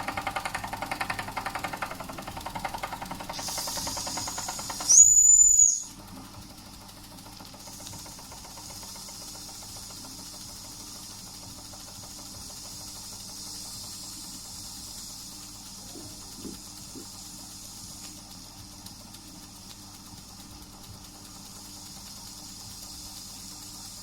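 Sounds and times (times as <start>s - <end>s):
model steam engine chuffing: 0.0s - 24.0s
steam hissing: 0.0s - 24.0s
high steam whistle: 3.4s - 6.0s.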